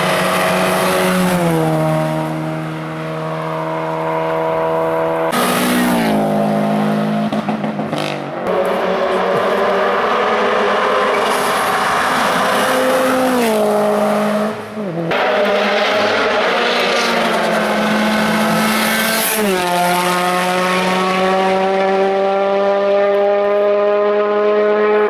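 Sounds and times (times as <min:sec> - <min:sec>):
race car engine revving: 0:00.0 - 0:25.0.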